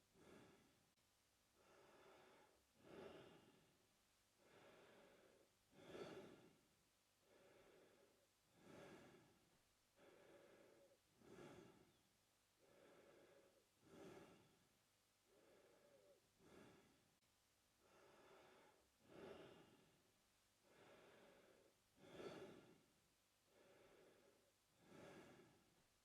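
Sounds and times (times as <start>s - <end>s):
man breathing through mouth: 4.4s - 6.5s, 7.3s - 9.4s, 10.0s - 12.0s, 12.6s - 14.6s, 20.6s - 22.8s, 23.5s - 25.6s.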